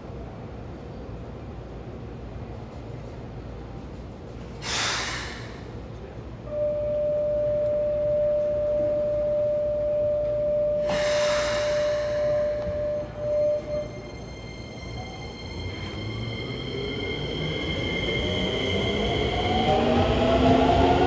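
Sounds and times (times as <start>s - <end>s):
compressed air hissing: 4.6s - 5.6s, 10.8s - 12.6s.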